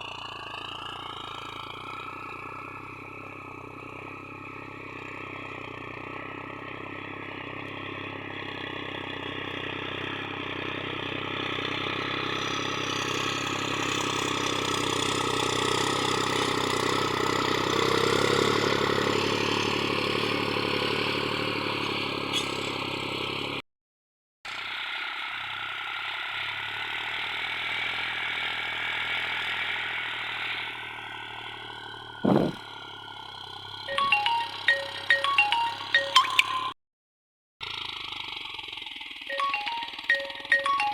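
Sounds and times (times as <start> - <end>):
tractor diesel engine running: 0.0 - 23.6, 24.5 - 36.8, 37.6 - 40.9
clatter: 21.8 - 23.2, 37.6 - 39.3
chiming background music: 33.9 - 36.8, 39.3 - 40.9.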